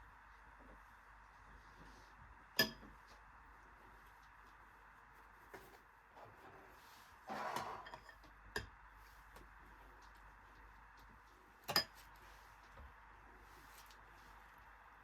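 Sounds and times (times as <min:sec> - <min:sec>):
rustling scrape: 0:06.2 - 0:08.0.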